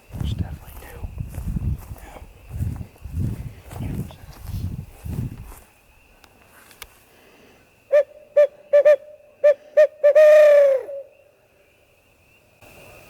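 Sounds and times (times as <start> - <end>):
owl hooting: 7.9 - 11.3.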